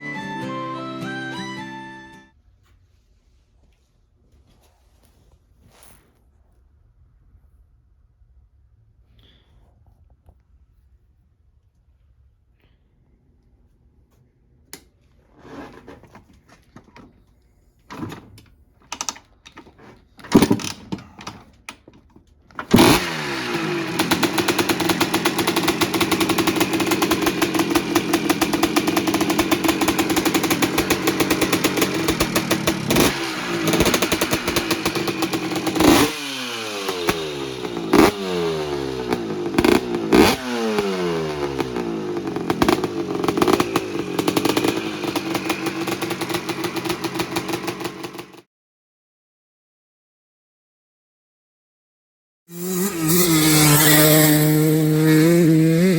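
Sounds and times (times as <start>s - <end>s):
engine knocks and rattles: 17.9s - 48.4s
two-stroke engine revving: 20.3s - 21.3s, 22.6s - 48.4s, 52.5s - 55.9s.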